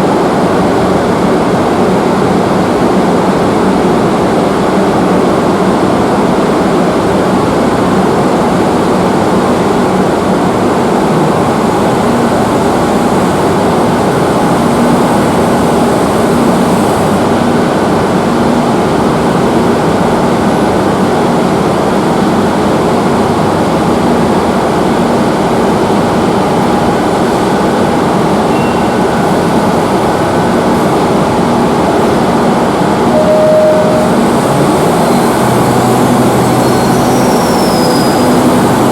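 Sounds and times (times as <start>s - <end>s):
underground train rumbling: 0.0s - 38.9s
short high tone: 28.4s - 30.2s, 33.1s - 38.8s.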